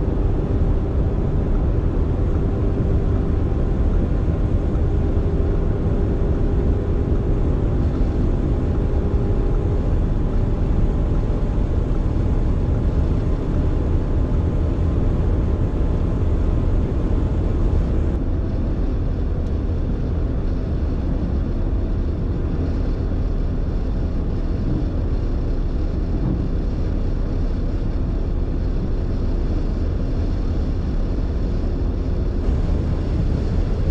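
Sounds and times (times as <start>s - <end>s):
engine drone: 0.0s - 33.9s
faint engine tones: 0.0s - 33.9s
road noise: 0.0s - 33.9s.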